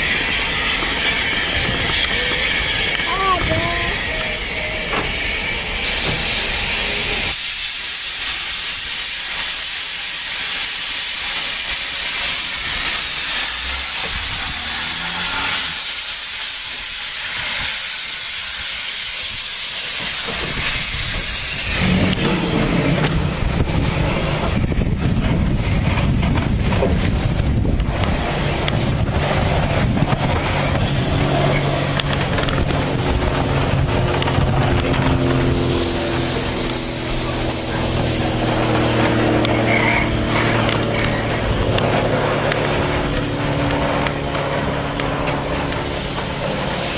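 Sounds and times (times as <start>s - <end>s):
steam locomotive hissing: 0.0s - 46.9s
low rumble: 21.4s - 46.9s.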